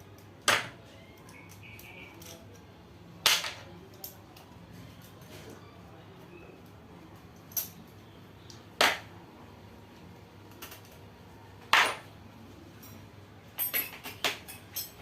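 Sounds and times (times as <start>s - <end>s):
metal tools clanking: 13.6s - 15.0s.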